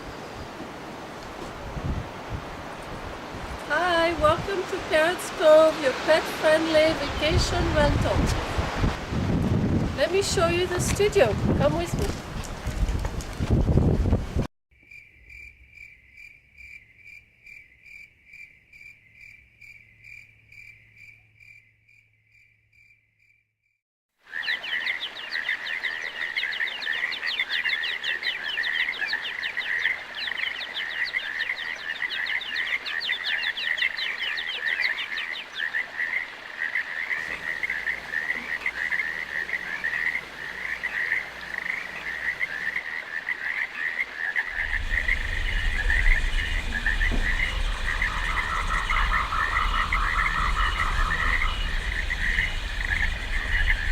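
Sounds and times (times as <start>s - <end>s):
chorus of frogs croaking: 24.2s - 53.9s
faint even chirp: 44.6s - 53.9s.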